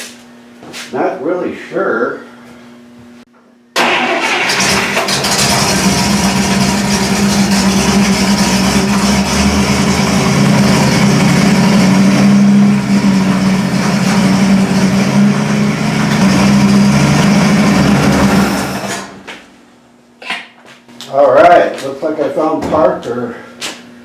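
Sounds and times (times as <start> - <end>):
car engine fast idle: 3.8 - 19.2.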